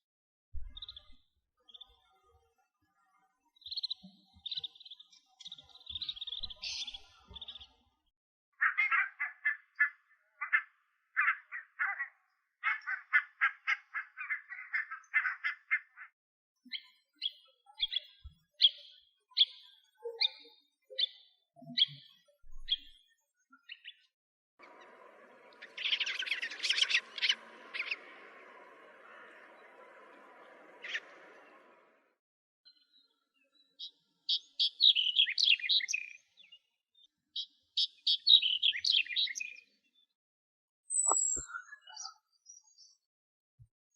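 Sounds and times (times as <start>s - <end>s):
bird calls: 3.8s - 7.7s, 8.6s - 16.1s, 22.6s - 23.0s, 24.6s - 31.8s, 33.8s - 36.3s, 37.4s - 39.6s, 40.9s - 42.2s
birds chattering: 25.6s - 30.0s, 34.3s - 36.1s, 38.0s - 39.5s.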